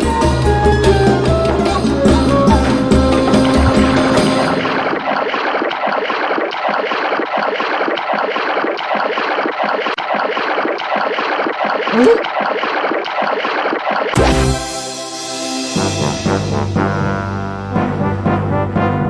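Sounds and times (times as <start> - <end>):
cartoon water splashing: 3.1 - 14.9.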